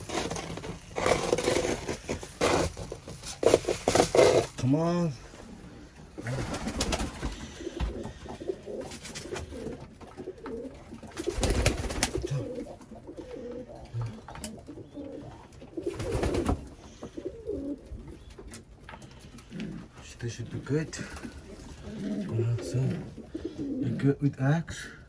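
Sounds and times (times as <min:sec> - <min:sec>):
pigeons cooing: 0:00.0 - 0:24.2.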